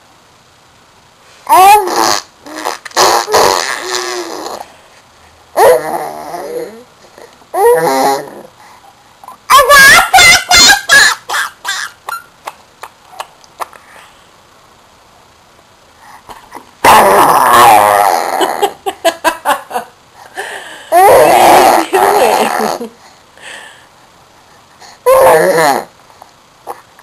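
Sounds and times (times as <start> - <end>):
baby vocalizing: 1.5 - 4.7, 5.6 - 8.5, 20.9 - 22.8, 25.1 - 25.9.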